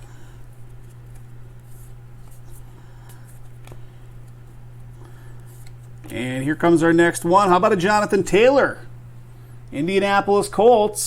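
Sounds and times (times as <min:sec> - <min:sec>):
steady low hum: 0:00.0 - 0:11.0
cards rustling and clicking: 0:00.4 - 0:06.2.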